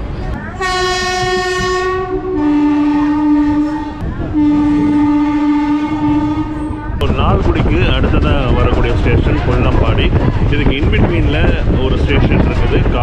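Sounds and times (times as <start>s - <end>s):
rumble of moving train: 0.0s - 13.0s
locomotive horn: 0.5s - 7.0s.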